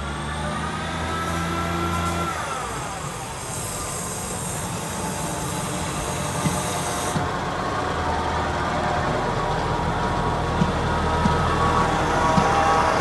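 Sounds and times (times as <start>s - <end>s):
diesel train engine droning: 0.0s - 13.0s
high hiss: 2.0s - 7.2s
wheels clicking over rail joints: 4.6s - 13.0s.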